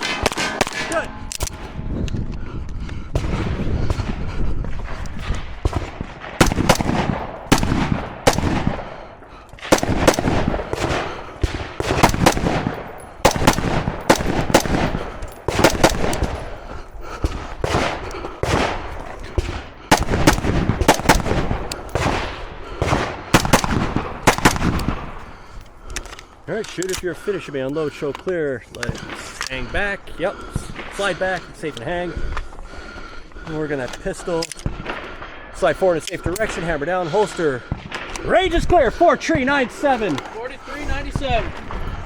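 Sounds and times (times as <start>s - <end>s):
rapid gunshots: 0.0s - 1.8s, 3.0s - 25.6s.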